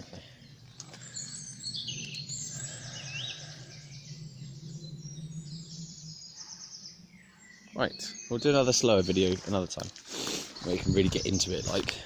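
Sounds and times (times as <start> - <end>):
low hum: 0.0 - 8.3
songbirds calling and trilling: 0.0 - 12.0.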